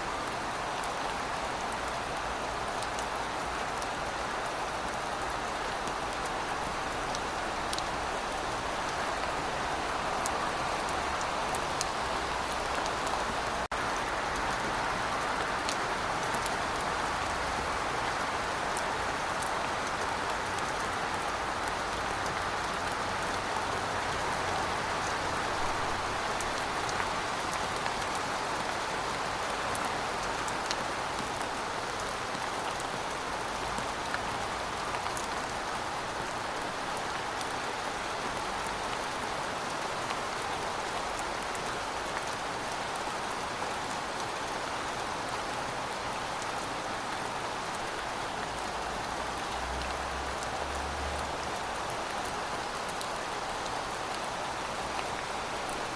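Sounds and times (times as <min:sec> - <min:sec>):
steady rain falling: 0:00.0 - 0:55.9.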